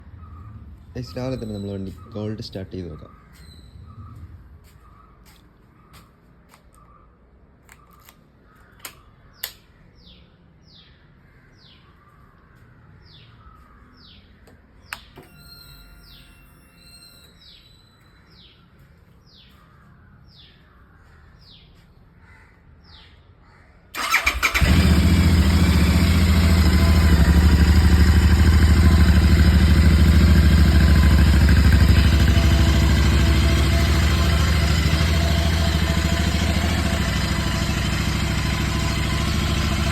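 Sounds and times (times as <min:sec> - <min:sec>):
bird chirping: 0:00.1 - 0:06.1, 0:13.1 - 0:21.8
sharp clicks: 0:07.7 - 0:09.7
motorcycle engine starting and idling: 0:23.9 - 0:39.9.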